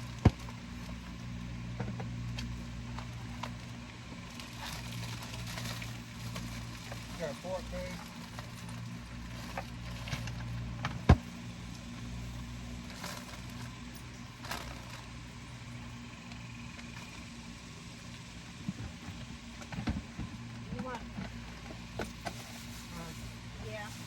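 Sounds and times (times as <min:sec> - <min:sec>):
idling motor hum: 0:00.0 - 0:24.0.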